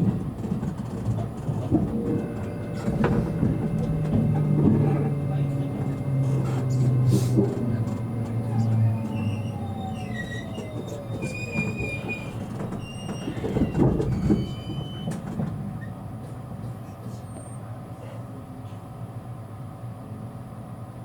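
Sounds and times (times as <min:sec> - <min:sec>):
train motor whine: 0:00.0 - 0:17.7
train running noise: 0:00.0 - 0:21.0
brake and wheel squeals: 0:02.2 - 0:05.2, 0:05.9 - 0:16.0, 0:16.7 - 0:17.6.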